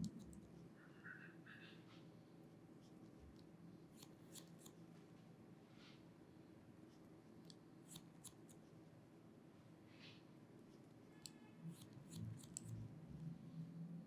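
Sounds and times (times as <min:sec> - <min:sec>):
low room hum: 0:00.0 - 0:14.0
scissors snipping hair: 0:03.4 - 0:04.8, 0:07.4 - 0:08.6, 0:11.2 - 0:12.8.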